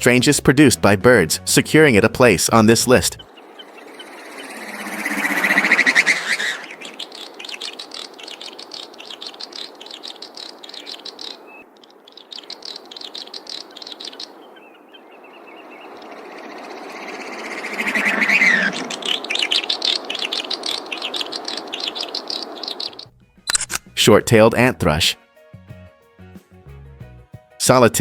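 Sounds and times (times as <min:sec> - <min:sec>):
snipe rushing display sound: 0:02.5 - 0:11.6.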